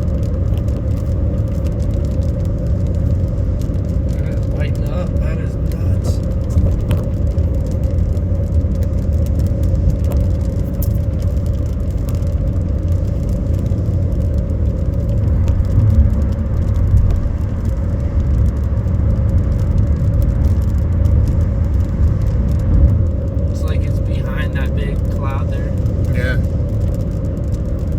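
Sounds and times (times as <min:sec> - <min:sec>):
road and engine rumble: 0:00.0 - 0:27.9
faint ticks: 0:05.6 - 0:24.4.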